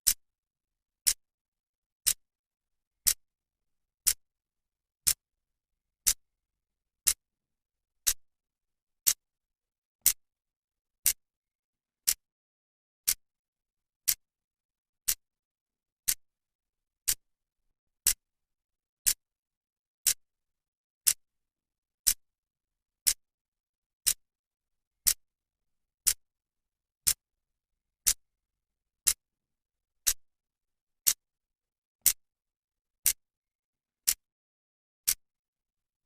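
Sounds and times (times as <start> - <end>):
clock ticking: 12.0 - 12.2, 17.0 - 17.2.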